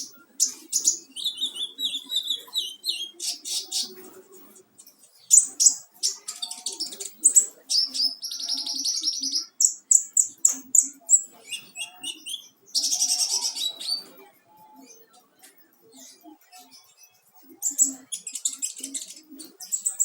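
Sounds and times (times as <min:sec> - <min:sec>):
bird chirping and trilling: 0:00.0 - 0:04.1, 0:04.8 - 0:15.2.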